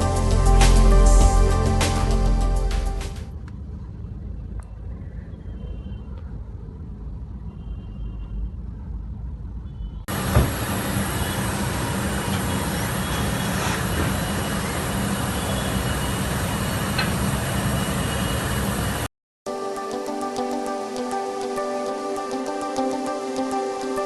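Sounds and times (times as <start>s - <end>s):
car engine rumble: 0.0s - 17.8s
hissy driving noise: 10.1s - 19.1s.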